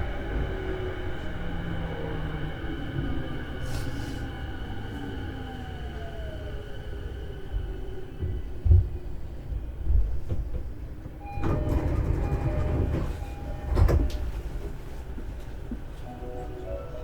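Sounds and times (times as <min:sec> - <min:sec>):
train doors sliding open: 0:10.0 - 0:17.0.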